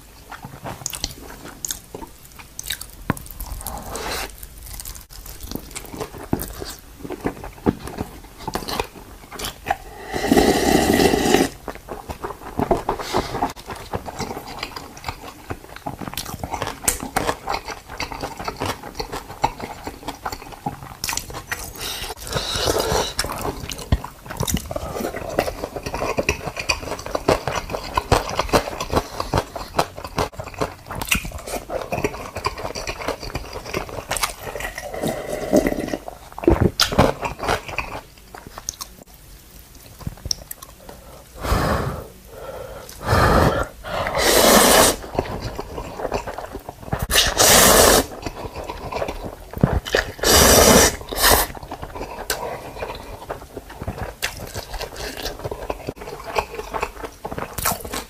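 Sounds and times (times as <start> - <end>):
panda chewing and crunching: 11.6 - 35.0, 44.0 - 58.0.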